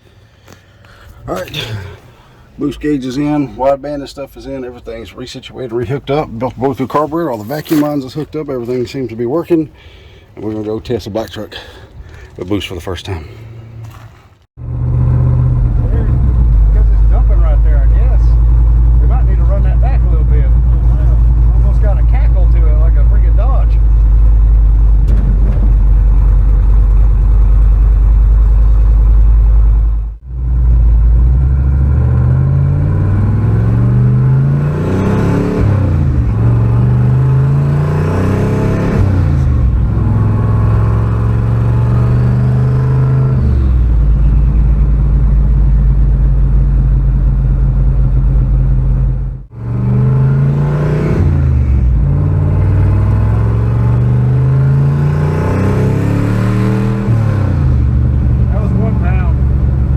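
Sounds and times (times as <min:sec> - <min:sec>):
pickup truck engine accelerating: 0:14.6 - 0:59.9.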